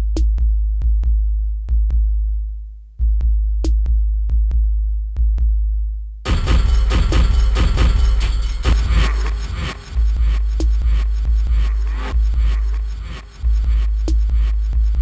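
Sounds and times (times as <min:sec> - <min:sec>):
deep bass drum notes: 0:03.0 - 0:15.0
electronic beat: 0:06.3 - 0:15.0
ticking percussion: 0:06.3 - 0:15.0.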